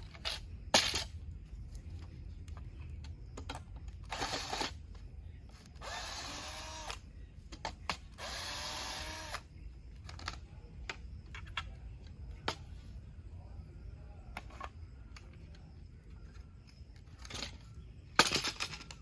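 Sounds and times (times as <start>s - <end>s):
cordless drill motor spinning: 4.1s - 4.7s, 5.8s - 7.0s, 8.2s - 9.4s.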